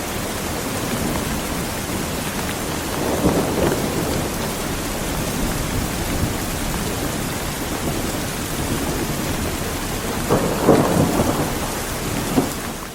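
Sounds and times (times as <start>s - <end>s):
heavy rain: 0.0s - 12.9s
low thunder rumbling: 0.5s - 12.9s.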